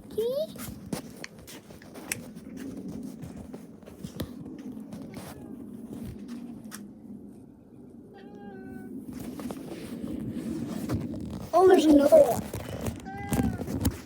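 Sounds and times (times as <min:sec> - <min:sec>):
small clicks and scrapes: 0:00.1 - 0:06.9, 0:09.2 - 0:14.0
rustle of handling: 0:09.1 - 0:14.0.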